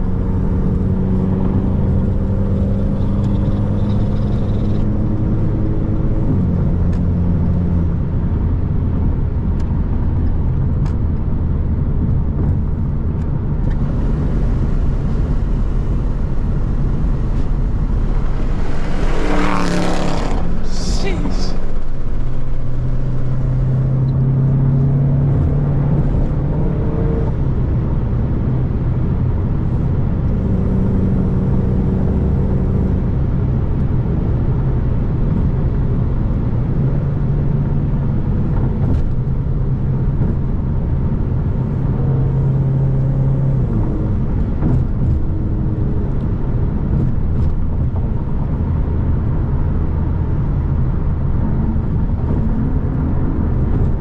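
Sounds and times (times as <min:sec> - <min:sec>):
car engine drone: 0:00.0 - 0:54.0
road noise: 0:00.0 - 0:54.0.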